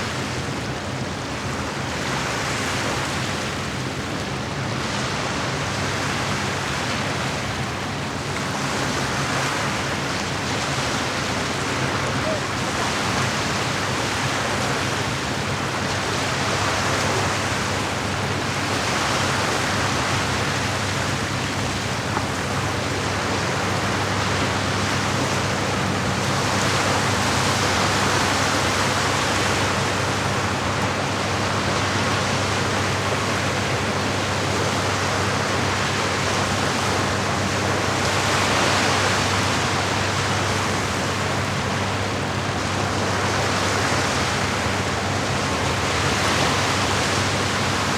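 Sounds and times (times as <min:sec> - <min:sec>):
rush of moving water: 0:00.0 - 0:47.9.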